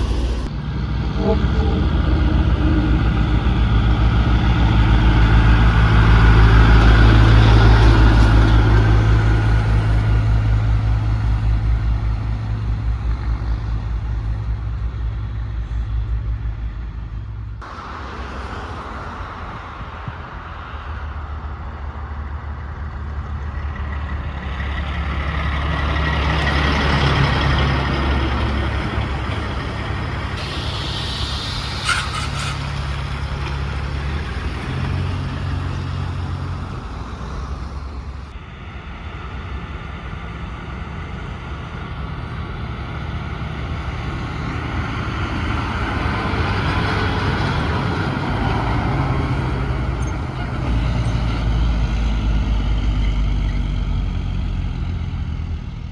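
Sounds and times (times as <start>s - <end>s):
heavy trucks driving past: 0.0s - 55.9s
air brake hiss: 29.0s - 34.6s.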